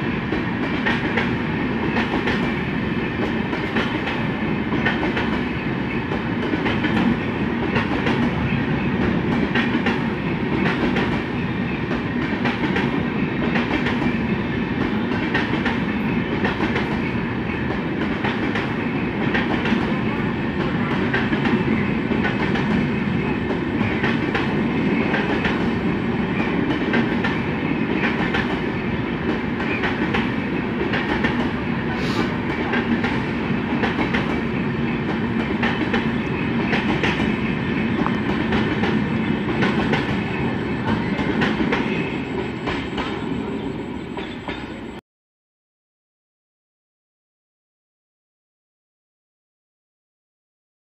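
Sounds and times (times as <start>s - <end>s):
train rumbling past: 0.0s - 45.0s
wheels clacking over rail joints: 32.5s - 43.4s.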